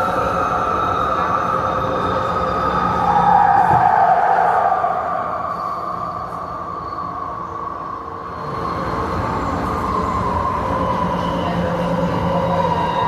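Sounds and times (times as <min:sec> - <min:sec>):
train rumble and rail noise: 0:00.0 - 0:13.0.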